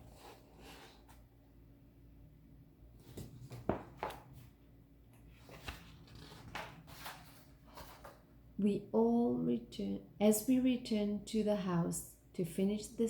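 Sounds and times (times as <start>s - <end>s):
book pages rustling: 5.2s - 8.2s.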